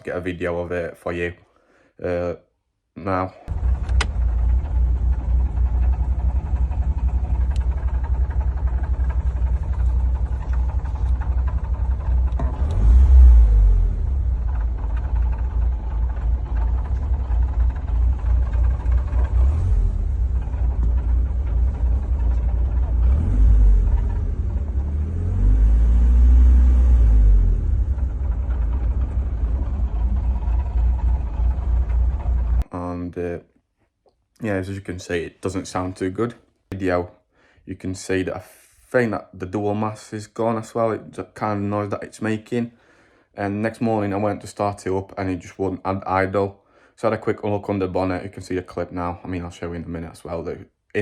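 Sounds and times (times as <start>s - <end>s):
car engine rumbling and revving: 3.5s - 32.7s.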